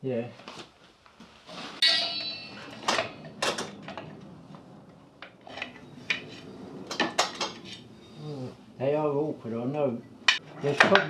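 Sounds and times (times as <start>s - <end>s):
ringing metal clang: 1.8s - 3.8s
metal brake parts clinking: 1.8s - 3.9s.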